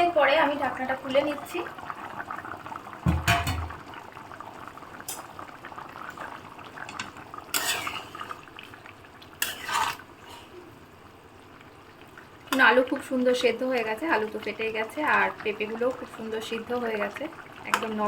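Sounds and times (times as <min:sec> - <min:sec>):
low thud: 0:03.0 - 0:03.8
metal pot lid clanking: 0:03.1 - 0:03.8
spoon scraping a pot: 0:07.0 - 0:08.3, 0:09.4 - 0:10.5.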